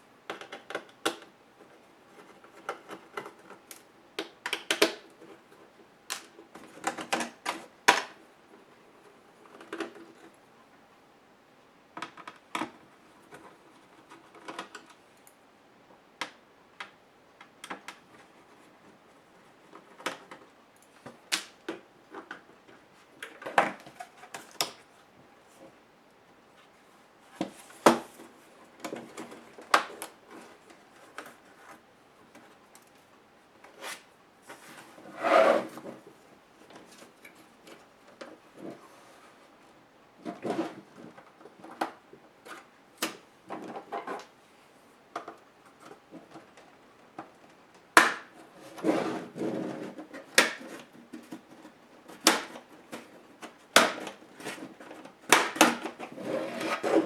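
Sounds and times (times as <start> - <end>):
clicks and taps of plastic parts: 0.3 - 5.1.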